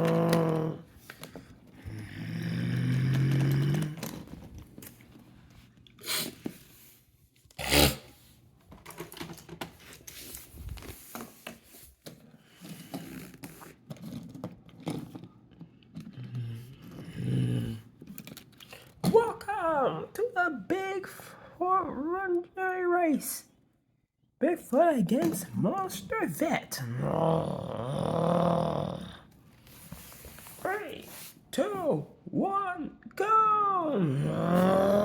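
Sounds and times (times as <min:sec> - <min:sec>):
person imitating engine noise: 0:00.0 - 0:00.9, 0:26.8 - 0:29.2, 0:33.9 - 0:35.0.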